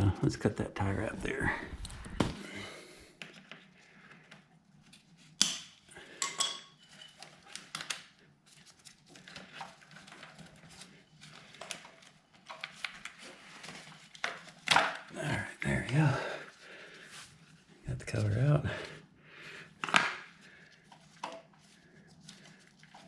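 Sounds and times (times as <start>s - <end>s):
hand tools and metal parts clinking: 6.2s - 7.4s.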